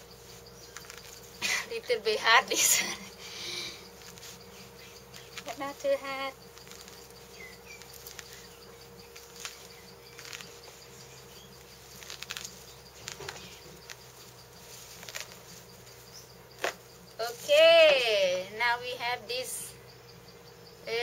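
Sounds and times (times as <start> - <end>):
steady background hum: 0.0 - 21.0
peel clicking and scraping: 0.6 - 1.4, 6.4 - 8.5, 9.1 - 10.9, 11.6 - 15.7.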